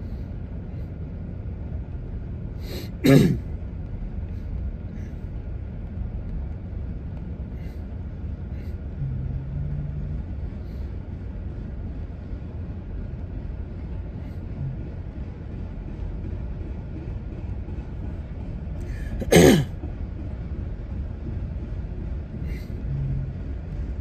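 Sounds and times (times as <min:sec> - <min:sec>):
freight train rumbling past: 0:00.0 - 0:24.0
person sneezing: 0:02.8 - 0:03.4.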